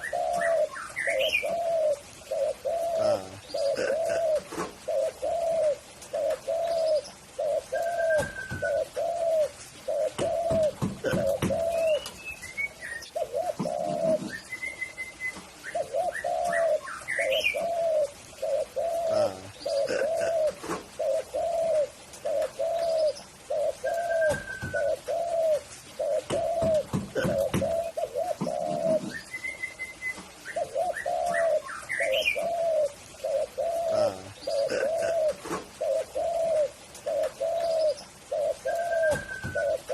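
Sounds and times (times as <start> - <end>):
dove cooing: 0.0 - 39.9
small birds chirping: 0.0 - 39.9
low thumps: 10.2 - 11.8, 26.2 - 29.1.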